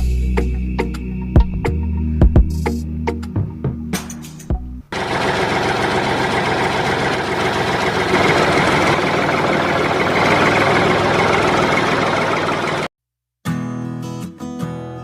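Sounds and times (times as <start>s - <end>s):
small engine running: 4.9s - 12.9s.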